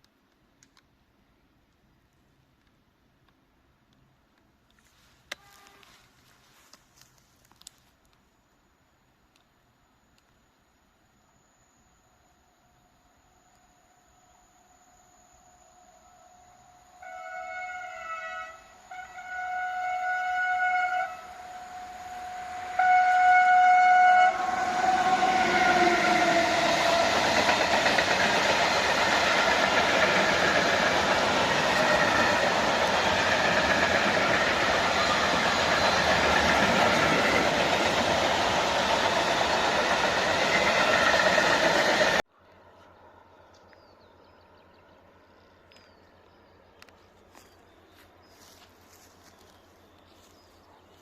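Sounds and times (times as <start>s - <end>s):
locomotive horn blasts: 5.3s - 6.0s, 16.9s - 27.2s
train passing with wheel clatter: 16.2s - 42.2s.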